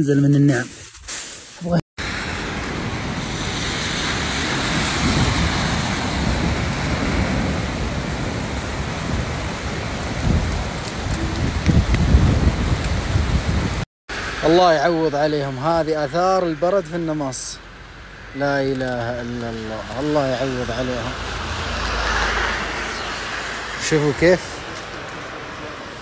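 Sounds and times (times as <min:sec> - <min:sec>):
cars swishing through water: 0:02.0 - 0:10.2
heavy rain pouring: 0:02.0 - 0:13.9
low rumbles: 0:02.0 - 0:24.8.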